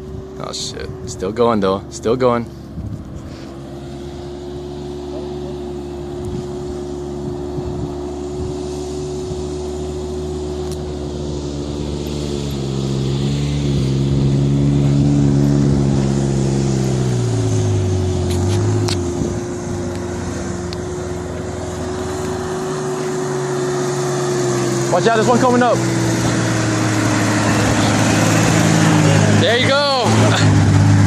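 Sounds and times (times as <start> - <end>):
off-road vehicle engine revving: 0.0 - 31.0.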